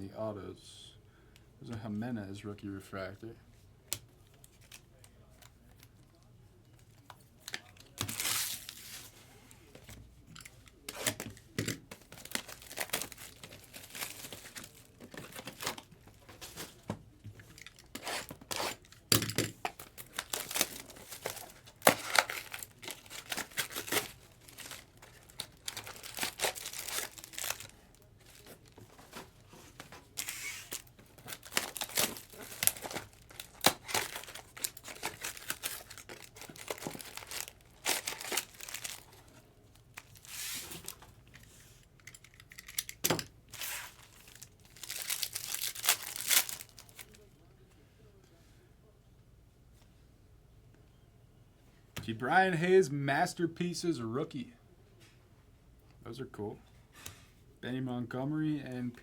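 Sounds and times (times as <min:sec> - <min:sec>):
wrappers tearing and crinkling: 0:07.5 - 0:09.1, 0:12.0 - 0:16.7, 0:17.4 - 0:39.3, 0:39.9 - 0:47.3.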